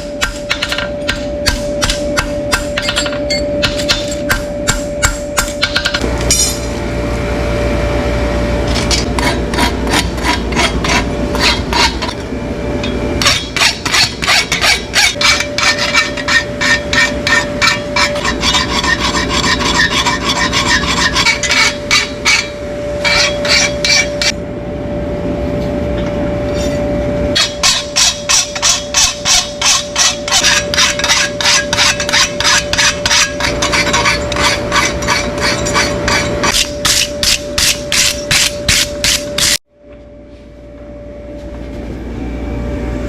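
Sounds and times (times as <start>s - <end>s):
steady hum: 0.0s - 43.0s
hoof rasp strokes: 13.2s - 24.3s, 27.4s - 39.6s.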